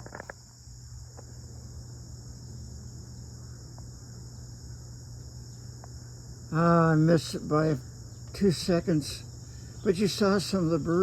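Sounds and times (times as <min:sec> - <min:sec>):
crickets trilling: 0:00.0 - 0:11.0
low steady hum: 0:00.0 - 0:11.0.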